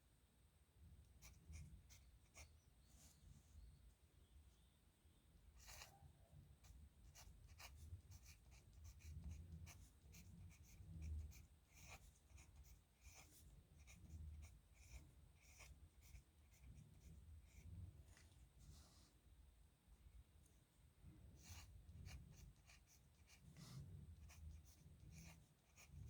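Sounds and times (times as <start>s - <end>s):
pen scratching on paper: 5.6s - 6.0s, 6.6s - 18.2s, 21.4s - 26.0s.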